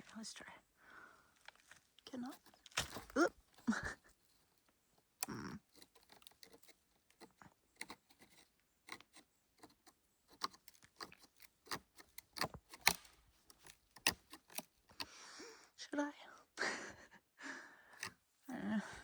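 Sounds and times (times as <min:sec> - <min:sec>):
dry tree roots cracking: 0:01.4 - 0:03.9, 0:05.2 - 0:09.0, 0:10.4 - 0:15.0.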